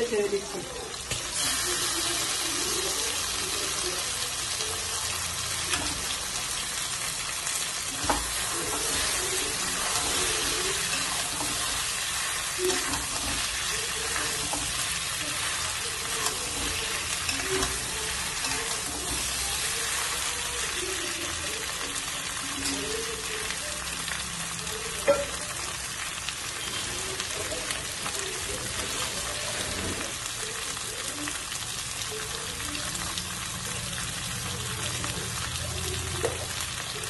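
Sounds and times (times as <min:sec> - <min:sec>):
food sizzling in hot oil: 0:00.0 - 0:37.0
spatula stirring: 0:07.5 - 0:20.8.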